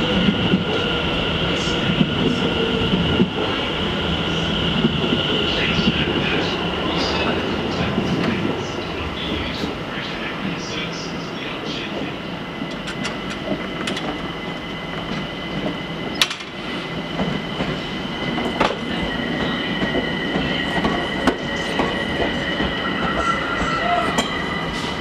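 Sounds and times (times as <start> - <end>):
train running on rails: 0.0 - 25.0
sharp clicks from wheels: 12.7 - 14.3, 15.0 - 16.6
high-pitched wheel squeal: 22.7 - 25.0.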